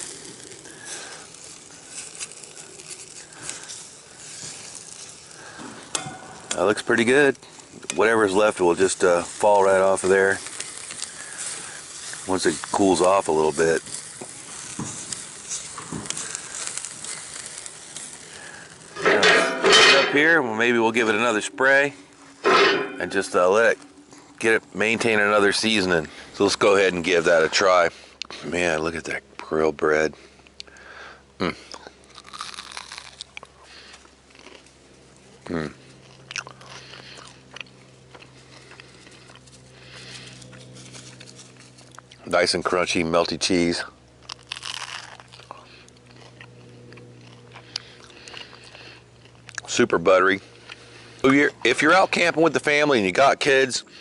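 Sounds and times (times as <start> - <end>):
campfire crackling: 0.0 - 54.0
steady low hum: 0.0 - 54.0
person chewing crunchy food: 31.8 - 34.7, 36.0 - 42.2, 44.2 - 49.7.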